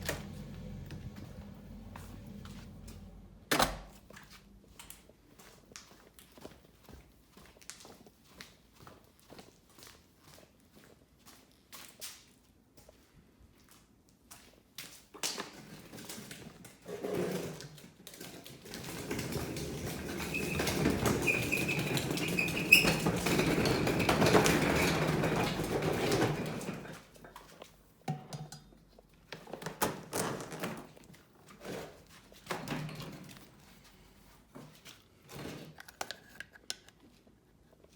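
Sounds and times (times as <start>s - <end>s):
vacuum cleaner being taken apart: 35.3s - 36.9s.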